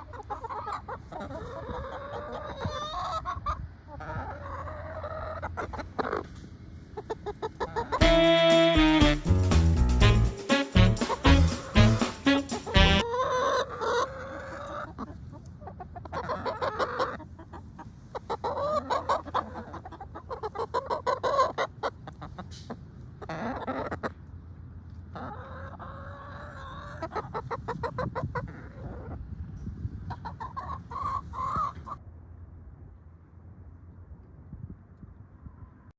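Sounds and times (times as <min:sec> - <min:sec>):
chickens clucking: 0:00.0 - 0:32.0
music: 0:08.0 - 0:13.0.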